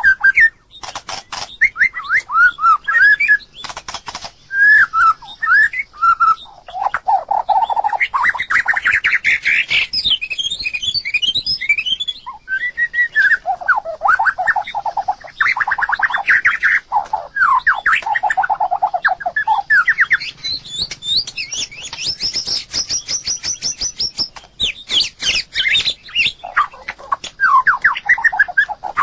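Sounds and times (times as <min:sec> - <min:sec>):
bird singing whistled phrases: 0:00.0 - 0:00.6, 0:01.3 - 0:03.7, 0:04.5 - 0:29.0
bird fast trill: 0:00.0 - 0:29.0
bird sharp clicks: 0:00.8 - 0:04.5, 0:14.1 - 0:29.0.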